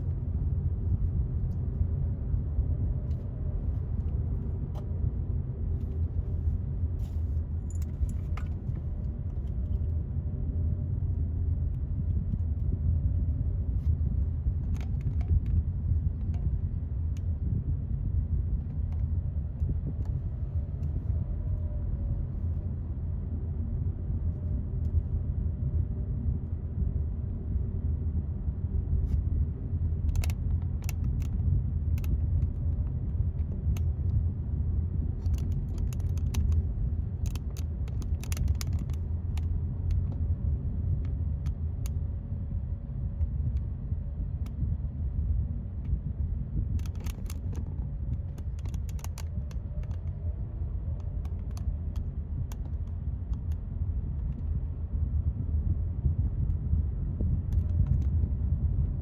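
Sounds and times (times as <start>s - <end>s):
low rumble: 0.0s - 59.0s
light clicks and ticks: 35.2s - 40.1s, 46.8s - 50.2s.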